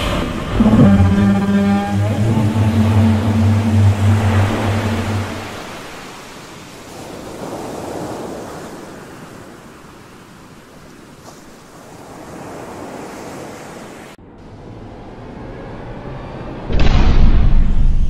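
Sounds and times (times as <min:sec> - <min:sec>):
ocean waves surging: 0:00.0 - 0:14.2.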